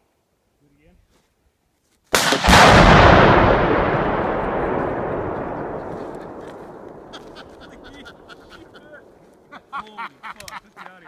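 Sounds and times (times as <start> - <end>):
explosive detonating: 2.2 - 9.2
long rolling rumble: 2.5 - 8.3.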